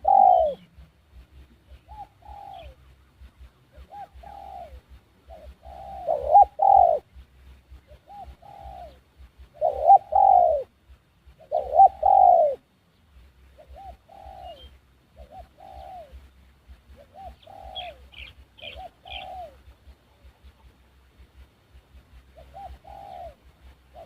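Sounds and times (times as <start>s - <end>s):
dove cooing: 0.0s - 12.7s, 13.5s - 20.7s, 22.2s - 24.0s
small bird chirps: 11.3s - 20.8s.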